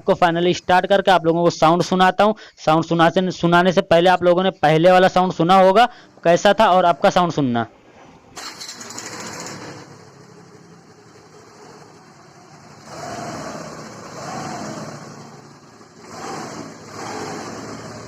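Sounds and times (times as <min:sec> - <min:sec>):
scooter engine starting and idling: 0:08.3 - 0:12.9, 0:15.0 - 0:16.9.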